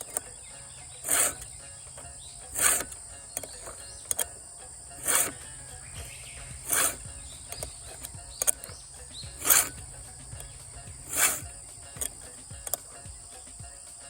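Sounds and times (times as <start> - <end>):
file rasping on chainsaw chain: 0.0 - 14.0.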